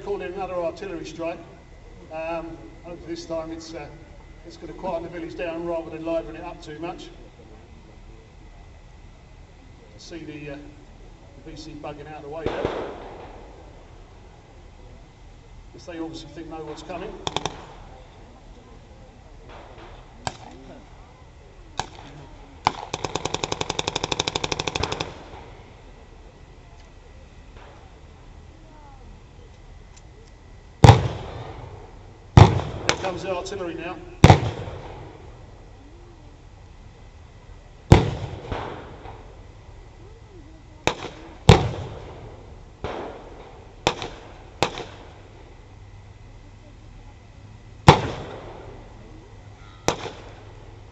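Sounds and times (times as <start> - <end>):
sharp pyrotechnic bangs: 11.5 - 14.2, 16.0 - 18.3, 19.4 - 21.0, 21.8 - 26.1, 30.7 - 35.7, 37.8 - 39.6, 40.8 - 45.9, 47.8 - 49.2, 49.8 - 50.9
rapid automatic gunfire: 12.4 - 13.3, 16.6 - 18.0, 21.8 - 25.6, 40.8 - 42.2, 43.8 - 45.1, 49.9 - 50.5
single gunshots: 12.4 - 13.5, 19.5 - 20.8, 21.8 - 25.6, 30.8 - 35.3, 37.9 - 39.3, 40.8 - 45.2, 47.8 - 48.8, 49.9 - 50.5.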